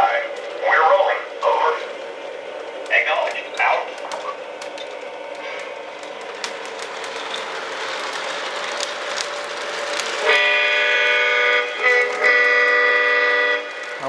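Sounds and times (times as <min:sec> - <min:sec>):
light track clicks: 0:00.0 - 0:14.0
model locomotive rumbling: 0:00.0 - 0:14.0
diesel air horn blasts: 0:10.2 - 0:14.0.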